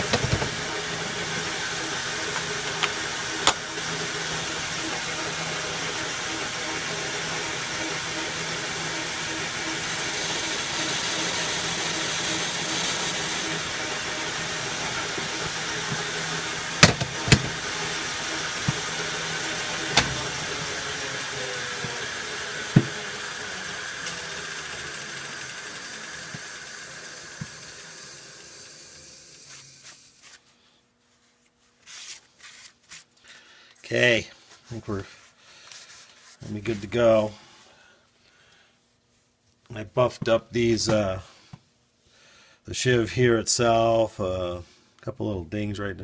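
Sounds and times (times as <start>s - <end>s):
metal lathe running: 0.0s - 29.6s
sharp knocks: 16.8s - 17.6s.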